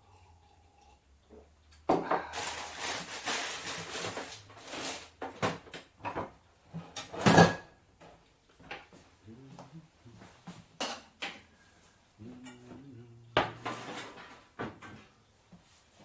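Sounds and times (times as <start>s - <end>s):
dense rustling: 2.3s - 5.2s.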